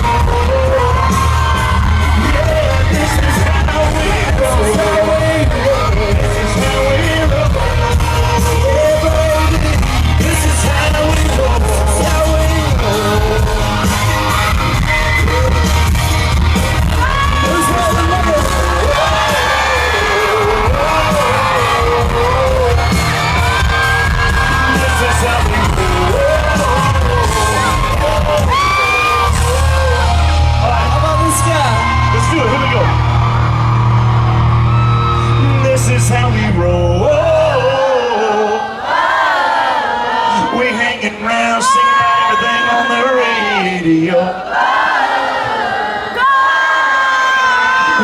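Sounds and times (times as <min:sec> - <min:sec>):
person singing: 0:00.0 - 0:31.0
heavy steady bass: 0:00.0 - 0:37.8
live country-rock band playing: 0:00.0 - 0:38.7.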